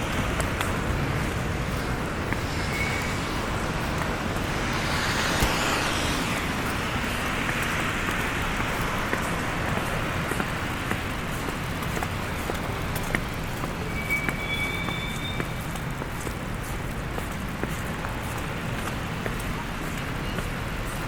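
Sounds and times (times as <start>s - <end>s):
vehicle passing: 0.0s - 10.6s
tyres hissing on slushy road: 0.0s - 21.0s.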